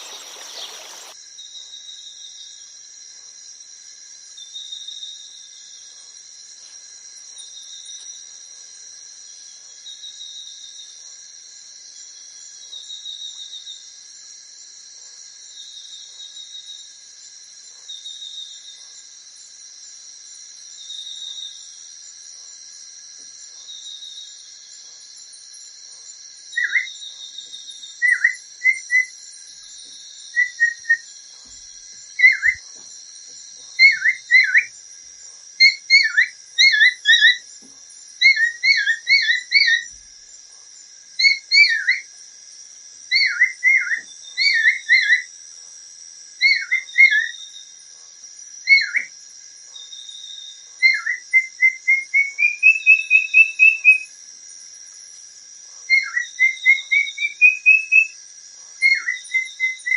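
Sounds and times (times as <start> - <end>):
bird whistling: 0.0 - 1.2, 30.4 - 31.0, 32.2 - 32.6, 33.8 - 34.7, 50.9 - 54.0, 56.0 - 58.2
high-pitched insect-like drone: 0.0 - 1.2.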